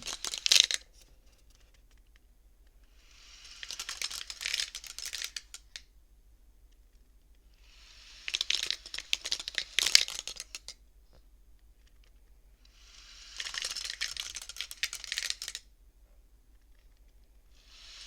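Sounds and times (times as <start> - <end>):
abacus beads clacking: 0.0 - 5.9, 7.3 - 10.8, 11.8 - 15.7.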